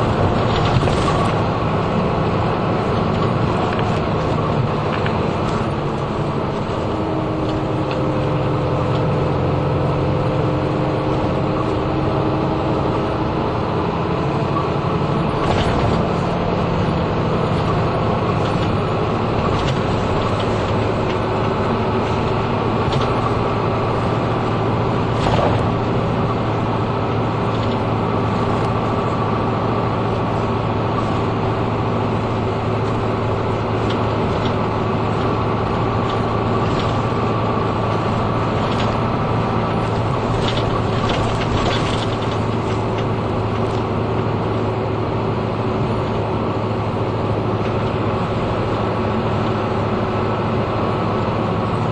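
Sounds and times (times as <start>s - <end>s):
bus engine running: 0.0s - 51.9s
road noise: 0.0s - 51.9s
knocks and rattles: 39.7s - 43.9s.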